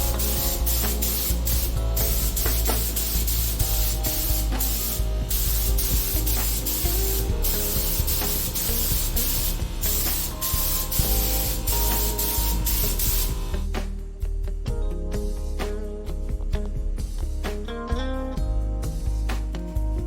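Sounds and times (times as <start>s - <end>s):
paint spray gun hissing: 0.0s - 13.6s.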